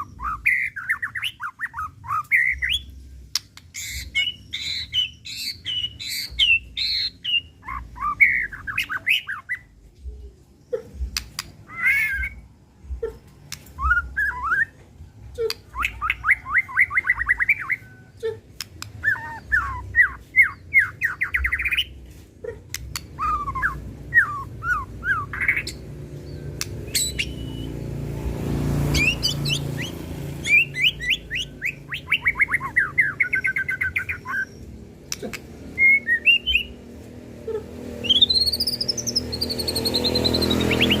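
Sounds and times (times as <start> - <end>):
bird singing rising notes: 0.0 - 10.0, 11.0 - 22.0, 22.9 - 41.0
sharp bird clicks: 0.8 - 7.4, 11.0 - 12.4, 13.3 - 14.4, 18.5 - 19.8, 22.7 - 24.4, 25.4 - 27.7, 28.9 - 35.7.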